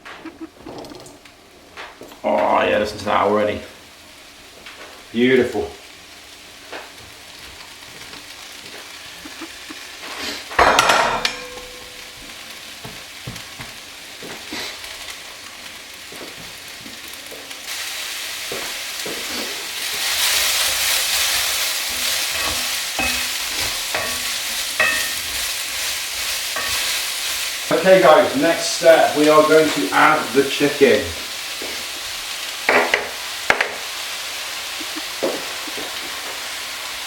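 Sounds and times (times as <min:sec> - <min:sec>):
onions sizzling in a pan: 0:01.3 - 0:10.6, 0:11.2 - 0:37.0
loud clank: 0:10.6 - 0:12.0.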